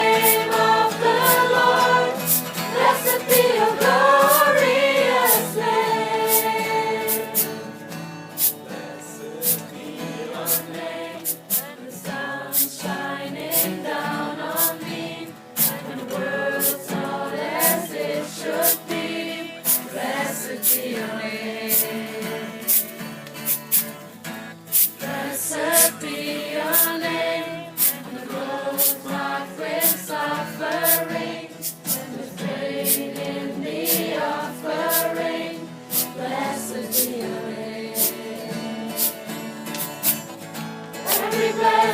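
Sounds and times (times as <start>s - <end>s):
steady beat of sharp strokes: 0.0s - 7.7s, 8.4s - 8.7s, 9.4s - 11.8s, 13.5s - 14.8s, 15.6s - 15.9s, 16.5s - 16.8s, 17.5s - 17.9s, 18.5s - 19.0s, 19.6s - 21.0s, 21.6s - 24.0s, 24.6s - 27.1s, 27.7s - 29.2s, 29.8s - 32.2s, 32.8s - 37.2s, 37.9s - 38.3s, 38.9s - 40.4s, 41.0s - 41.9s
group of voices singing: 0.0s - 23.9s, 24.7s - 40.4s, 41.0s - 41.9s.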